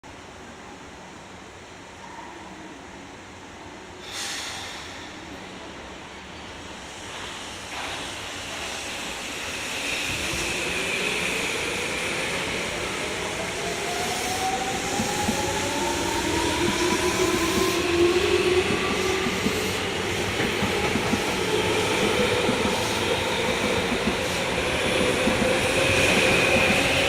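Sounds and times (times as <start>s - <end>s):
hiss of air: 4.0s - 5.4s, 6.6s - 27.0s
wheels rumbling on rail: 10.0s - 27.0s.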